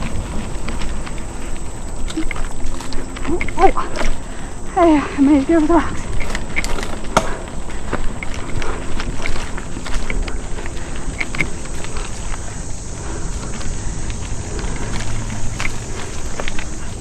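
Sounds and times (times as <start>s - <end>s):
bike rattling and clicking: 0.0s - 17.0s
bike tyres rumbling on rocky trail: 0.0s - 17.0s.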